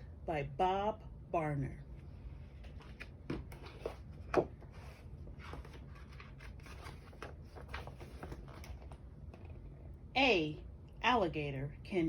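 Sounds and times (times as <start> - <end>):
book pages turning: 2.3 - 9.6
paper rustling: 2.4 - 9.6.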